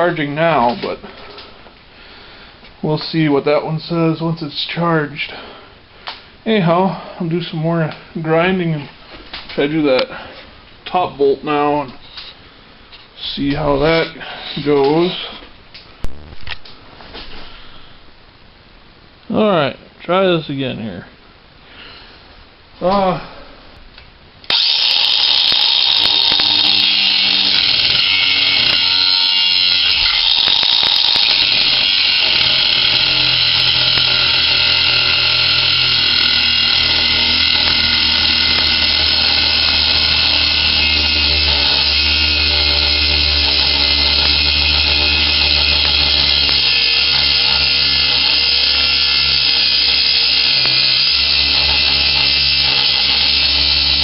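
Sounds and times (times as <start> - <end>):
angle grinder cutting steel: 24.5 - 54.0.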